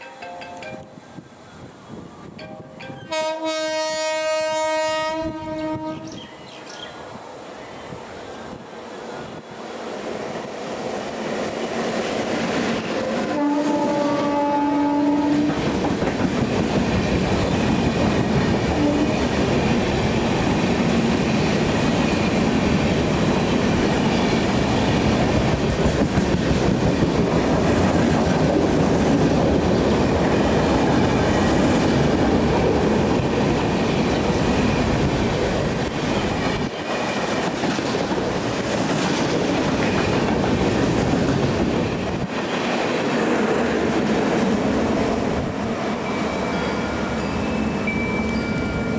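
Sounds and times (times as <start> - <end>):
train passing: 0.0 - 48.9
train horn: 2.6 - 6.3, 13.0 - 15.6, 18.7 - 19.3.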